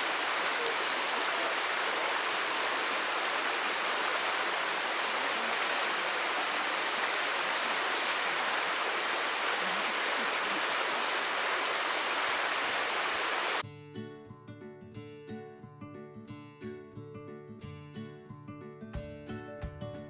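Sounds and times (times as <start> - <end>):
water rushing: 0.0 - 13.6.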